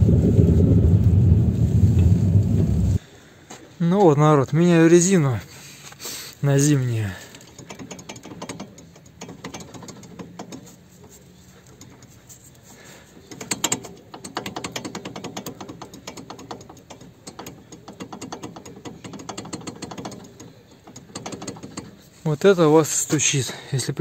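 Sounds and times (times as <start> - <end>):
ratchet wrench clicking: 7.3 - 12.2, 13.3 - 22.1.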